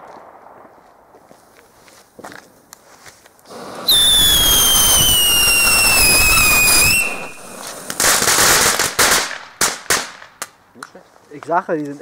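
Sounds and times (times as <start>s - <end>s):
crackling firework burst: 3.4s - 10.5s
whistling firework screaming: 3.5s - 9.0s
firework bangs: 3.5s - 10.5s.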